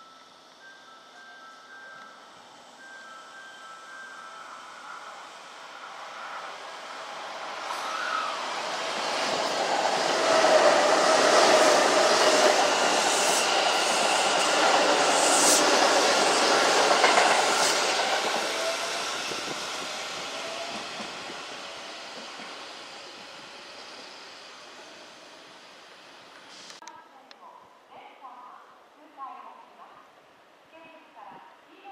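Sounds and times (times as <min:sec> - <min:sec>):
train wheels clacking over rail joints: 0:09.0 - 0:18.6.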